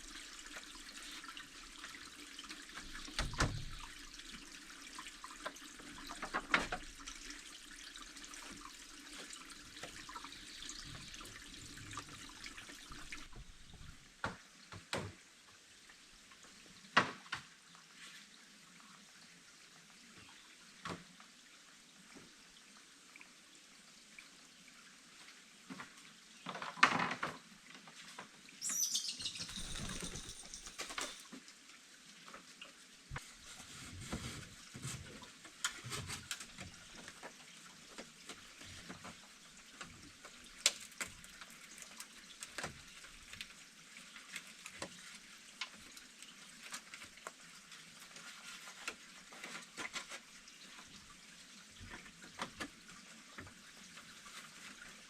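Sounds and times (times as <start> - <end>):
high falling whistle: 28.6 - 31.1.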